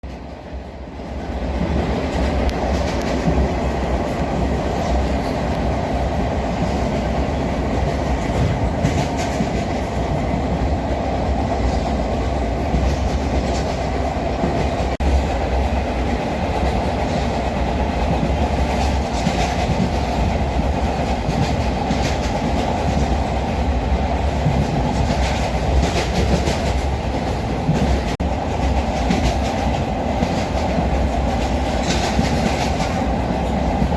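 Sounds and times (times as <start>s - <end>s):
rail clicks and knocks: 0.0s - 33.9s
train wheels rumbling on track: 0.0s - 33.9s.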